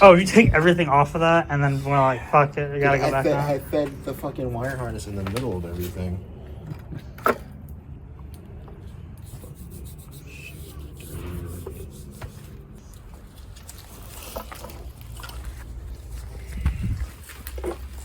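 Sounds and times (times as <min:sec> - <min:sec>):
low steady hum: 0:00.0 - 0:18.0
parts rubbing and clicking: 0:09.2 - 0:18.0.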